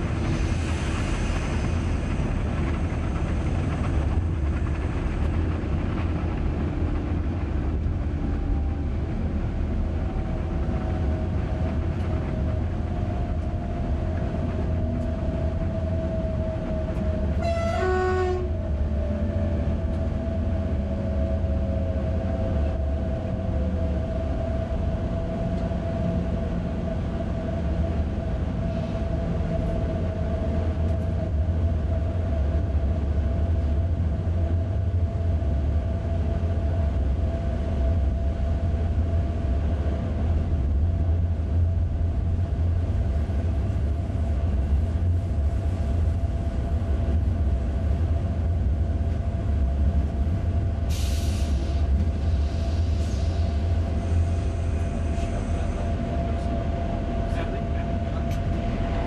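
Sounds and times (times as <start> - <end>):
electric train rumble and whine: 0.0 - 59.0
two-note train horn: 17.3 - 18.6.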